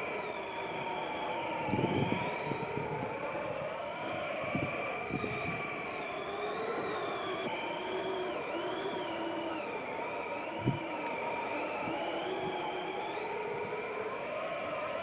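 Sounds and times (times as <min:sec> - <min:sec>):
wind howling and whistling: 0:00.0 - 0:15.0.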